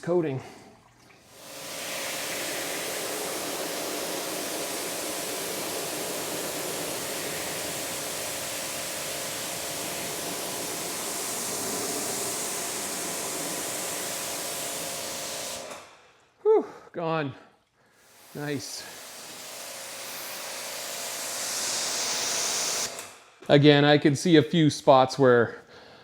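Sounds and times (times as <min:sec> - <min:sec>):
pump humming: 0:00.4 - 0:15.8, 0:18.0 - 0:23.1
pressure washer spraying water: 0:01.2 - 0:15.9, 0:18.0 - 0:23.2.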